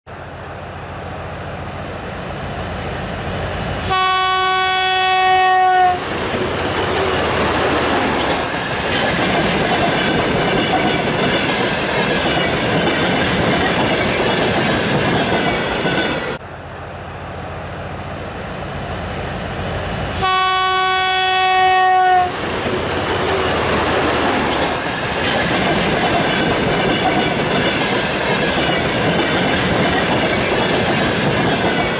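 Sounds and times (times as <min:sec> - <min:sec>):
train passing close by: 0:00.1 - 0:31.9
locomotive horn blast: 0:03.8 - 0:06.0, 0:20.2 - 0:22.4.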